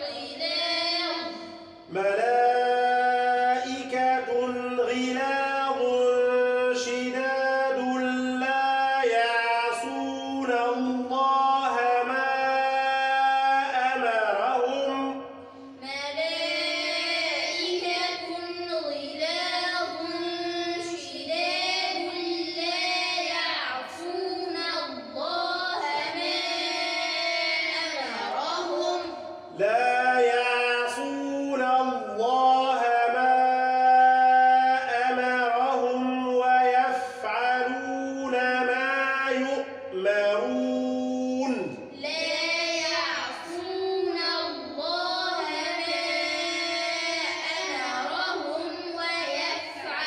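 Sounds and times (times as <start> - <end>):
person reciting melodically: 0.0 - 50.0
children repeating in chorus: 19.4 - 29.6, 40.4 - 50.0.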